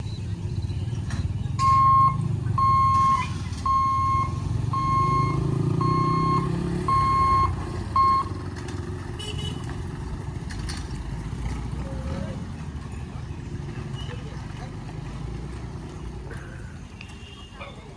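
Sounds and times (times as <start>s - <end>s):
vehicle engines rumbling: 0.0s - 17.9s
electronic warning beeps: 1.6s - 8.4s.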